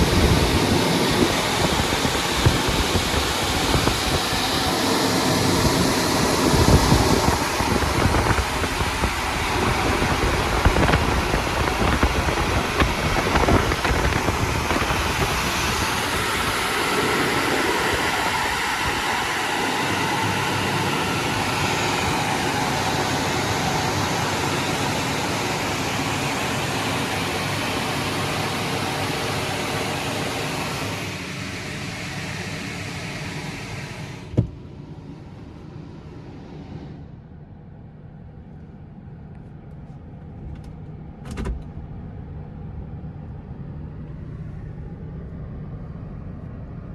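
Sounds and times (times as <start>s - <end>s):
car wash dryer blowers rushing: 0.0s - 37.2s.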